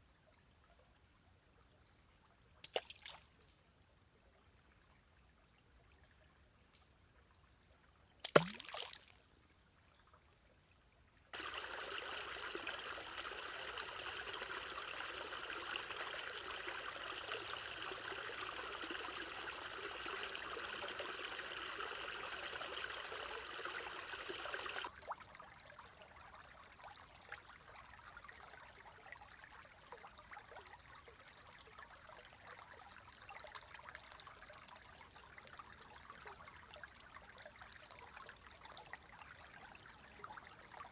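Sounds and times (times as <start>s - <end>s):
stream water flowing: 8.2s - 9.3s, 11.3s - 40.9s
water trickling: 11.3s - 40.9s.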